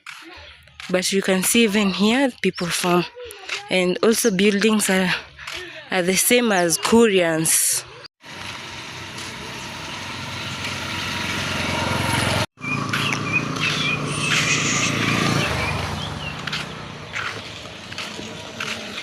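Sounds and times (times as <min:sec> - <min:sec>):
vehicle engine passing by: 0:08.2 - 0:19.0
short high chirps: 0:13.0 - 0:15.3.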